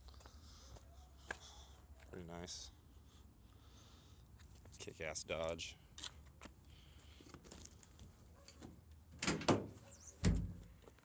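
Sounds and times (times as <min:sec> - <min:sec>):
door latch and creak: 0:09.2 - 0:10.6.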